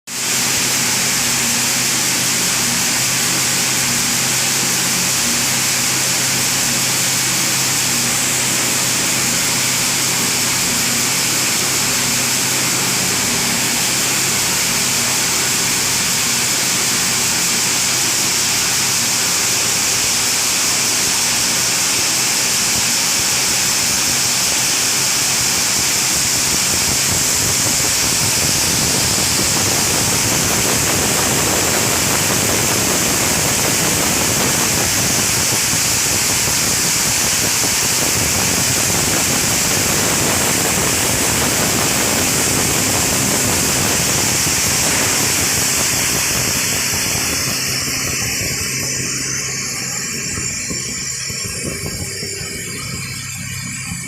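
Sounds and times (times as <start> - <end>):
motors and feed grinder running: 0.1 - 54.0
low hum: 26.2 - 54.0.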